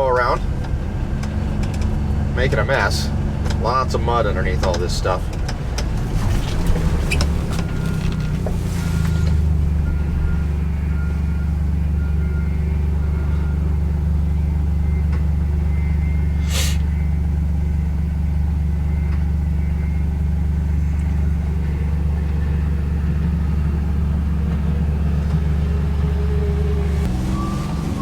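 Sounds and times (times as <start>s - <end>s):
vehicle engine droning: 0.0s - 28.0s
brief hiss: 16.4s - 16.9s.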